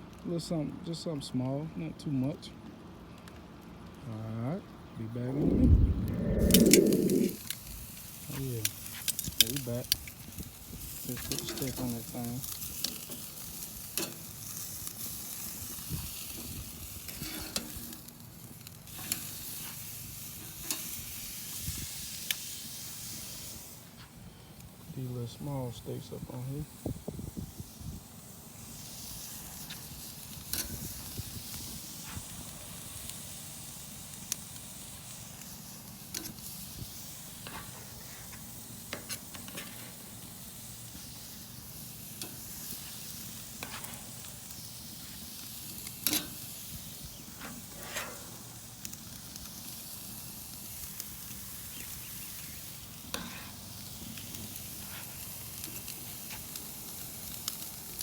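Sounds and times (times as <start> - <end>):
sharp pops and crackles: 5.4 - 15.0, 40.9 - 53.4, 54.0 - 58.0
steaks sizzling on a grill: 6.4 - 58.0.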